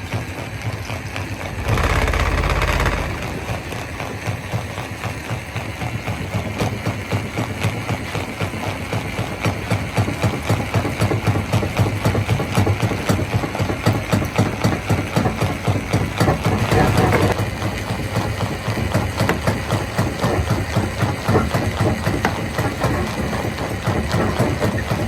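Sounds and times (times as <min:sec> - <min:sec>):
stone crusher engine drone: 0:01.3 - 0:06.1, 0:14.2 - 0:25.0.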